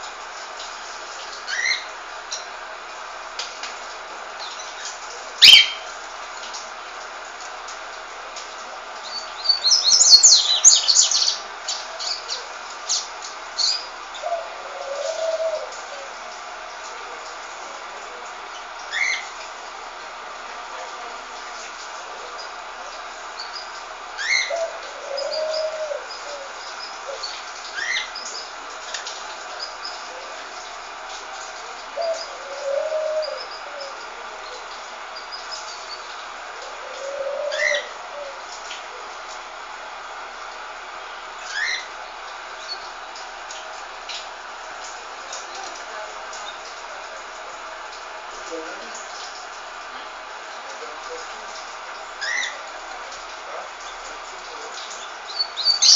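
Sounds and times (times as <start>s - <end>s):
steady hiss: 0.0s - 55.9s
pet birds chirping: 5.4s - 5.8s, 55.0s - 55.9s
rising bird calls: 5.4s - 5.9s.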